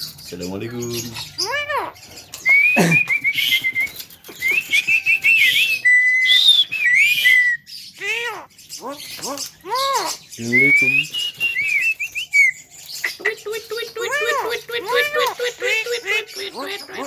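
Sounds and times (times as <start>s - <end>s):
bird whistling and chattering: 0.0s - 17.0s
short steady bird whistle: 2.5s - 7.7s.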